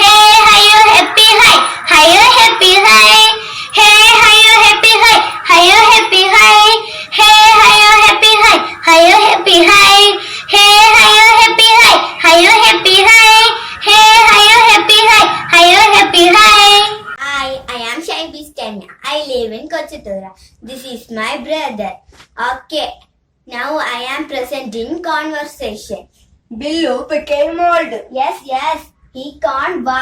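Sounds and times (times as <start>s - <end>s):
child singing: 0.0s - 19.2s.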